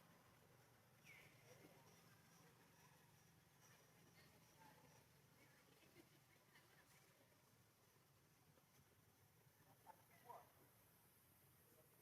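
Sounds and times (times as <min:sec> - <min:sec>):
faint high chirp: 0:01.0 - 0:05.2.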